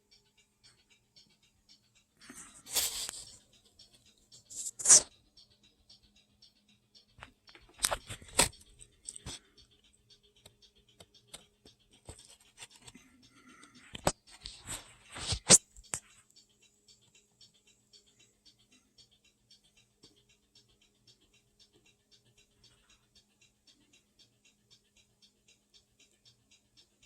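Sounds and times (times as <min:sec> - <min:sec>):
fast regular ticking: 0:00.0 - 0:27.0
small parts clicking and rustling: 0:02.2 - 0:05.2, 0:07.0 - 0:16.4.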